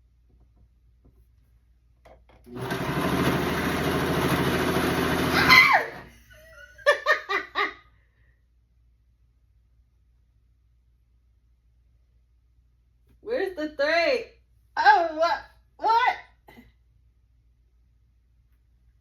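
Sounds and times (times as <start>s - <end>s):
sewing machine motor buzzing: 2.5s - 6.1s
people laughing: 6.1s - 7.8s.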